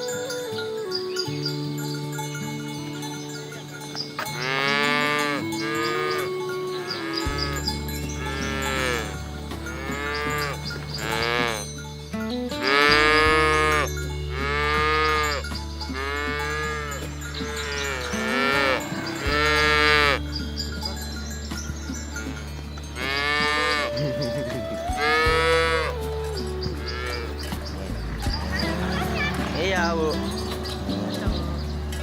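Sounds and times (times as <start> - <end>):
background music: 0.0 - 32.0
cattle mooing: 4.2 - 11.6, 12.6 - 20.2, 22.2 - 32.0.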